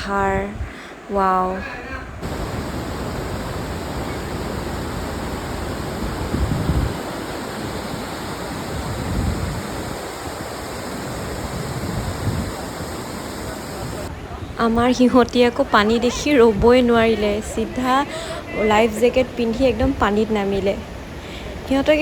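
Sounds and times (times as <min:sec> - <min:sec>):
waterfall rushing: 0:02.2 - 0:14.1.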